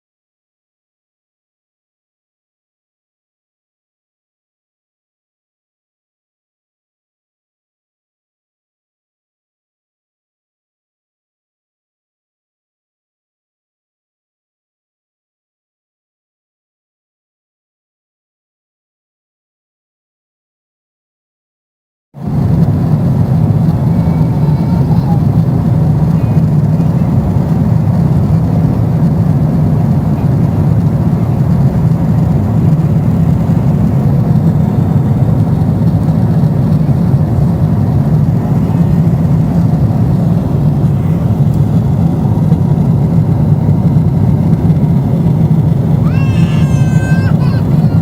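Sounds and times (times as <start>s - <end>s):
airliner cabin engine drone: 22.2s - 48.0s
child crying: 23.8s - 25.4s, 46.0s - 48.0s.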